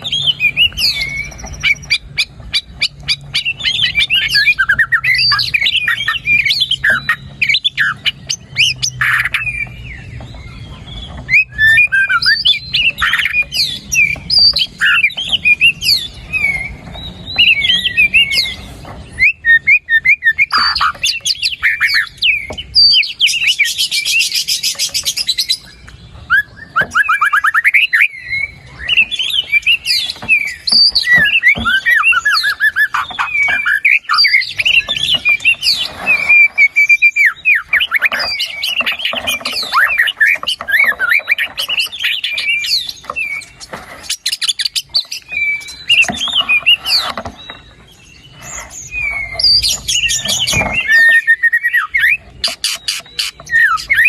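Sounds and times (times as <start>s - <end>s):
songbird singing whistles: 0.0s - 54.0s.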